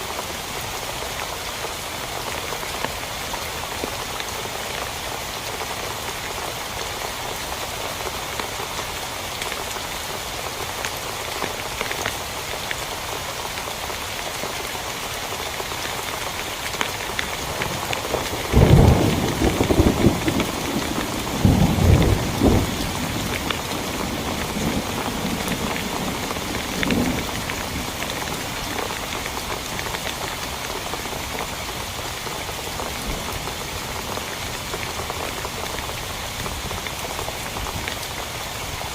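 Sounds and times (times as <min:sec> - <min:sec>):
heavy rain on a tent: 0:00.0 - 0:38.9
thunder rumbling: 0:17.6 - 0:29.0.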